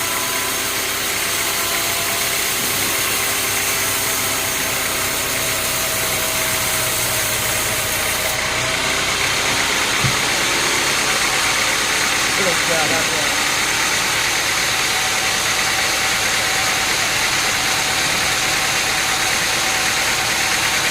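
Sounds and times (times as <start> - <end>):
machinery engine idling: 0.0 - 20.9
short knock: 10.0 - 10.6.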